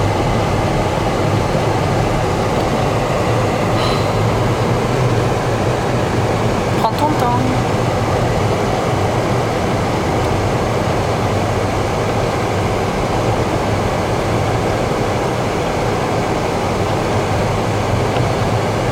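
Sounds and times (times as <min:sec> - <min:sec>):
car cabin low hum: 0:00.0 - 0:11.8.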